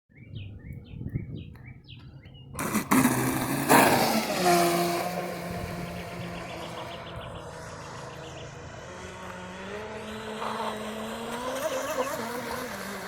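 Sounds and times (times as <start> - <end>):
bird chirps: 0.1 - 2.6, 5.6 - 9.0
rc boat motor under throttle: 2.6 - 13.0.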